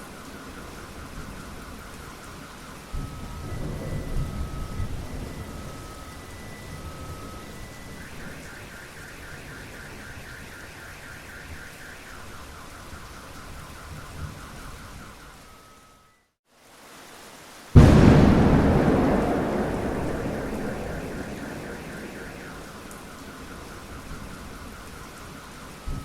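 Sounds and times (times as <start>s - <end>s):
heavy rain: 16.5s - 26.0s
car alarm: 17.8s - 23.7s
thunder rumble: 17.8s - 24.2s.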